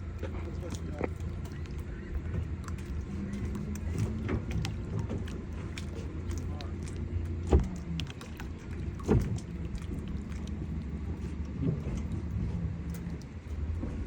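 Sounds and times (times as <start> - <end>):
engine running at low speed: 0.0 - 14.0.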